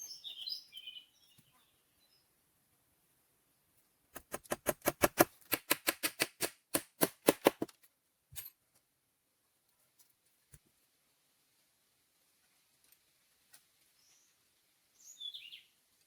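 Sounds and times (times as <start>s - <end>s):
rapid sharp knocks: 4.2s - 7.7s.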